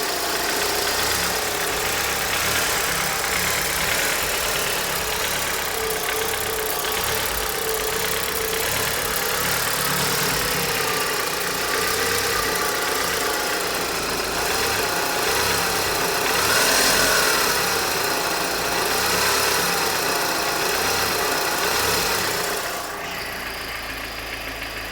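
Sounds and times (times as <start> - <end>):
car engine running: 0.0 - 24.9
engine knock: 0.0 - 24.9.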